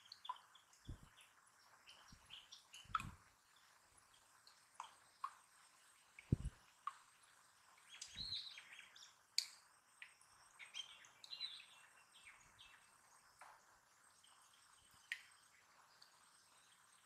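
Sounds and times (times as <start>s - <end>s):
faint birds chirping: 0.0s - 17.0s
soft low thump: 6.3s - 6.6s.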